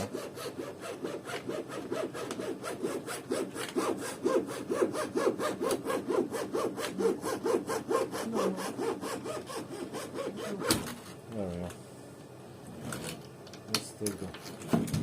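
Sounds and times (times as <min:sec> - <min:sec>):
wire sawing through sealant: 0:00.0 - 0:10.7.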